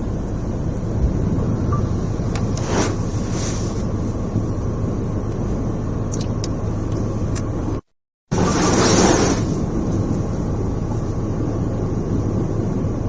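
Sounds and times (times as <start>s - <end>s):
strong wind: 0.0s - 6.0s
rough surf rumble: 0.5s - 4.6s, 8.3s - 11.1s.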